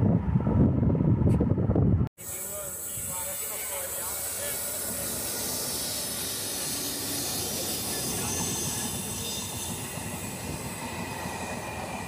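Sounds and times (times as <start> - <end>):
trains rushing and rumbling: 0.0 - 12.0.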